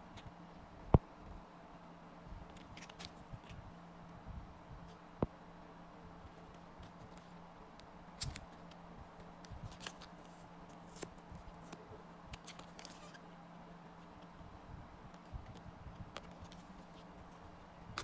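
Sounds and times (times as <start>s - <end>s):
steady low hum: 0.0s - 18.0s
cards and packaging rustling: 2.5s - 3.2s, 9.6s - 13.2s.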